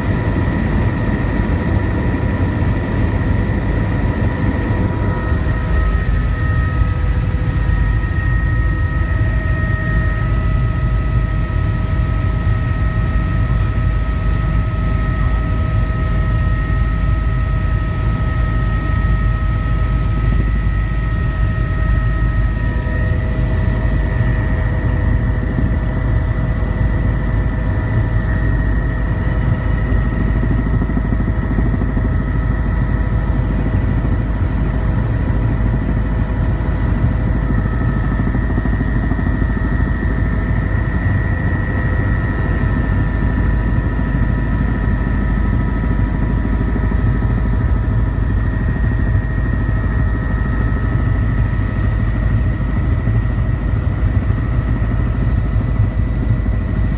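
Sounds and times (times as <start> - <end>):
helicopter whining tones: 0.0 - 9.8, 27.7 - 51.7
helicopter rotor drone: 0.0 - 56.9.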